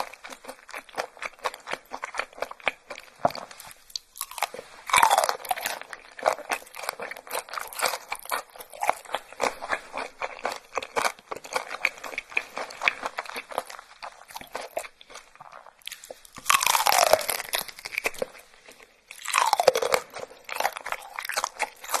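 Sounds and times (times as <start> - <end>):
crackling chewing of crunchy food: 0.0 - 22.0
loud crunching bites: 3.9 - 13.7, 16.0 - 18.3, 19.2 - 22.0.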